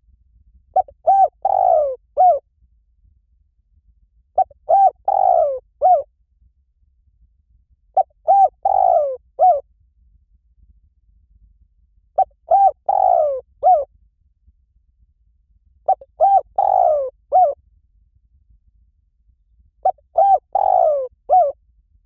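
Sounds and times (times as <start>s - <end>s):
dove cooing: 0.8s - 2.4s, 4.4s - 6.1s, 8.0s - 9.6s, 12.2s - 13.9s, 15.9s - 17.6s, 19.8s - 21.6s.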